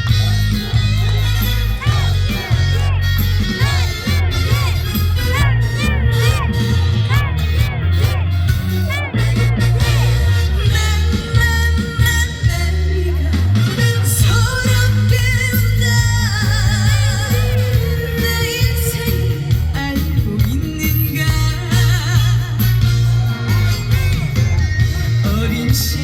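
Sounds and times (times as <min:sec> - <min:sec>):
loud backing music: 0:00.0 - 0:26.0
woman singing: 0:08.9 - 0:22.7.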